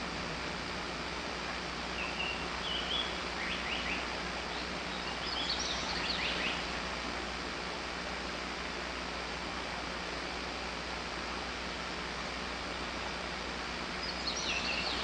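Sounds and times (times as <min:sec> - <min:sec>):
songbirds chirping: 0:00.0 - 0:07.0, 0:12.7 - 0:15.0
steady background hiss: 0:00.0 - 0:15.0.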